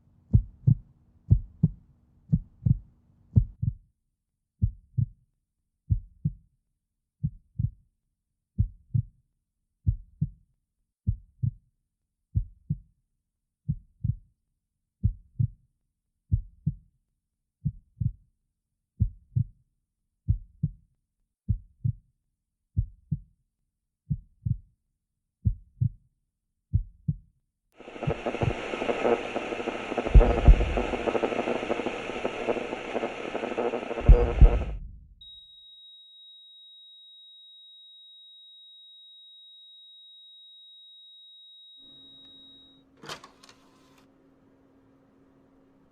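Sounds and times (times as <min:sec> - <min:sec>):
slow heartbeat: 0:00.3 - 0:03.8, 0:27.8 - 0:35.3
rumbling noise with hum: 0:27.8 - 0:35.2.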